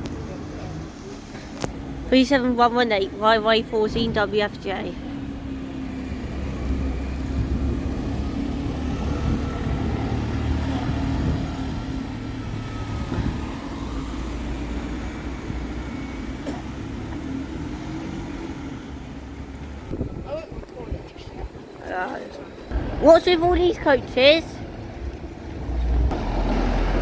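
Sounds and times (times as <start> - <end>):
diesel bus engine drone: 0.0 - 20.2, 22.4 - 27.0.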